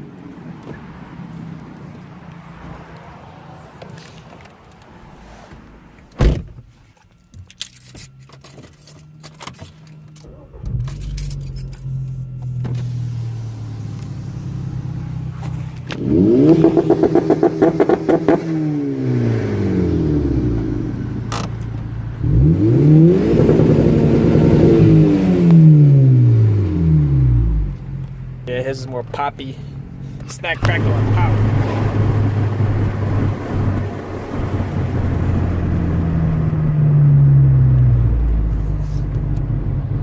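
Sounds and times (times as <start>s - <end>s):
car engine starting and idling: 0.0s - 40.0s
car engine revving: 10.0s - 40.0s.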